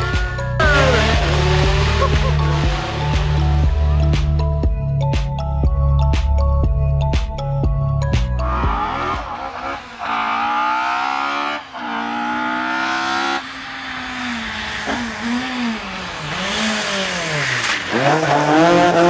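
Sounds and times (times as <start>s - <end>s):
rally car engine revving: 0.0s - 4.6s, 8.4s - 19.0s.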